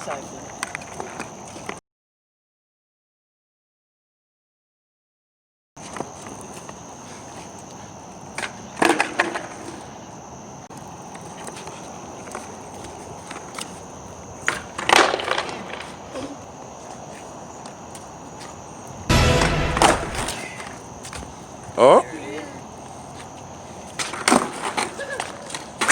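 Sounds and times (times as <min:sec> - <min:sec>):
skateboard clattering onto pavement: 0:08.4 - 0:09.8, 0:14.4 - 0:16.3, 0:24.0 - 0:25.9.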